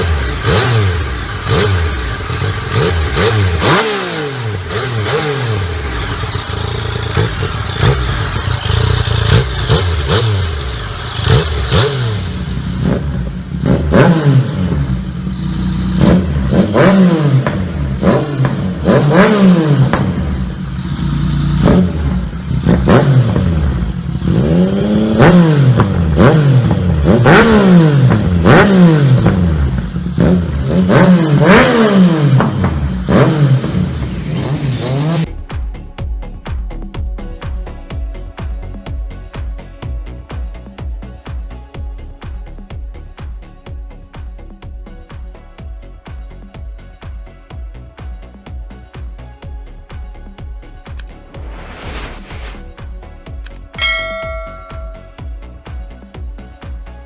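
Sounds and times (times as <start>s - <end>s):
motorcycle engine revving hard: 0.0s - 35.3s.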